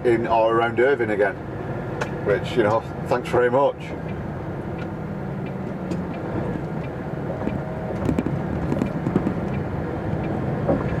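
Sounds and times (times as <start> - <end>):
knocks and rattles: 8.0 - 9.6.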